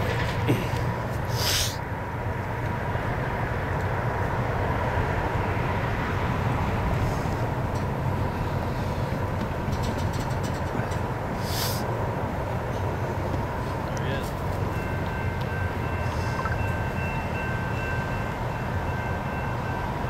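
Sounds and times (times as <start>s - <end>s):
diesel train rumble: 0.0s - 20.0s
short hiss: 1.3s - 1.8s, 11.4s - 11.9s
faint steady tone: 14.7s - 20.0s.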